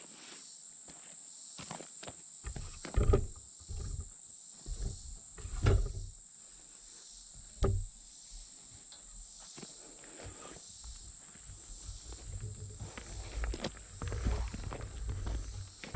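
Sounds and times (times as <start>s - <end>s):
short knocks and scrapes: 2.4s - 6.2s, 7.4s - 9.3s, 10.1s - 15.9s.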